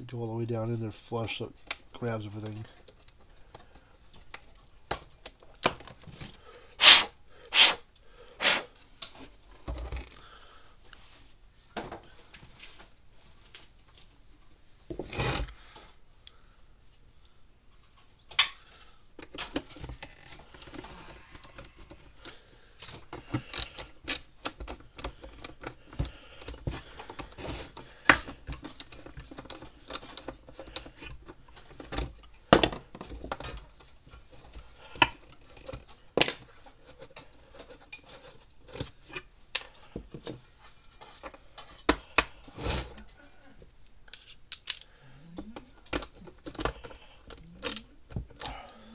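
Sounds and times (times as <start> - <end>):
scraping and handling noise: 8.4 - 16.0, 17.7 - 48.9
metal clicks and knocks on screw: 44.1 - 44.9.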